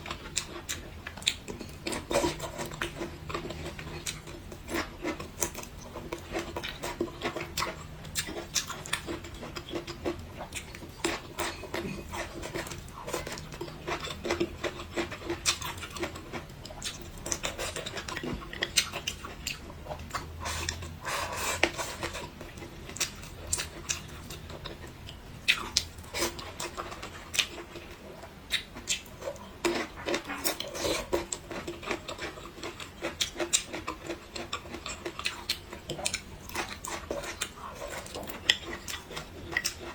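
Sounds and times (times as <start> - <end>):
chewing and mouth smacking: 0.0 - 39.9.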